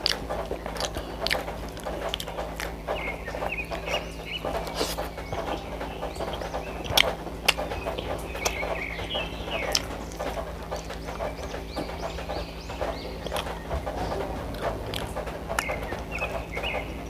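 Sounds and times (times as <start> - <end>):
person chewing: 0.0 - 5.6, 9.5 - 11.3, 13.2 - 16.2
birds chirping: 0.0 - 17.0
mouth clicks: 0.0 - 17.0
steady low hum: 0.0 - 17.0.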